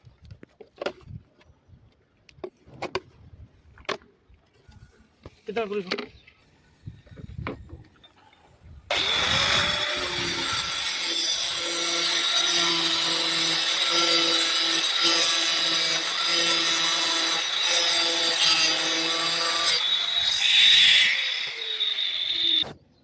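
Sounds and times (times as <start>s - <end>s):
power tool motor running: 8.9s - 22.6s
hissing scrape: 17.6s - 22.7s.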